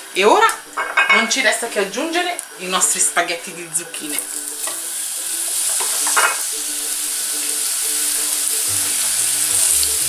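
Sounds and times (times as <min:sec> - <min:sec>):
vegetables sizzling in hot oil: 0:00.0 - 0:10.0
oil crackle: 0:04.0 - 0:10.0.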